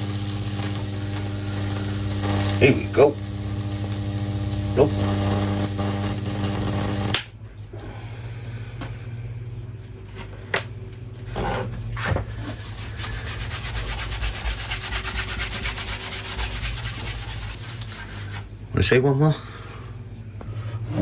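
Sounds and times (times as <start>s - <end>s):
electric arc crackling through wood: 0.0s - 7.4s, 12.6s - 18.5s
transformer humming: 0.0s - 12.0s
sharp click: 7.1s - 7.3s.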